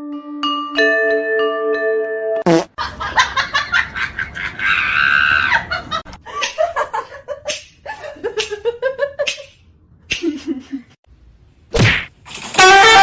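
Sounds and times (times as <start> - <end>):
person laughing hard: 2.8 - 9.4.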